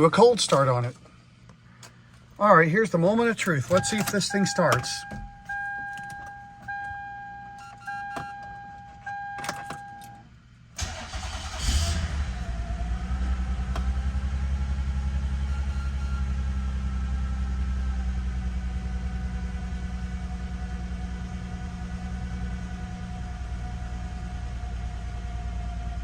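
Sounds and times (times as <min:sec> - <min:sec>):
car engine idling rough: 0:16.2 - 0:26.0.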